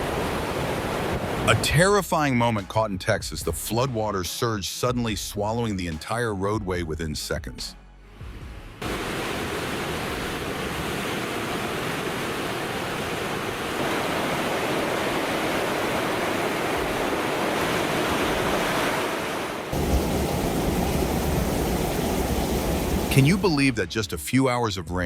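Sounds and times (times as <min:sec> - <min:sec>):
floodwater rushing: 0:08.8 - 0:23.8.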